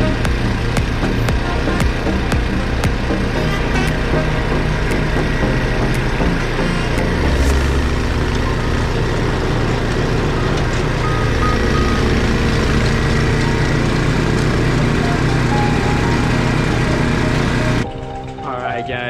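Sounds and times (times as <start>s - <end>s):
motor vehicle engine rumble: 0.0s - 18.6s.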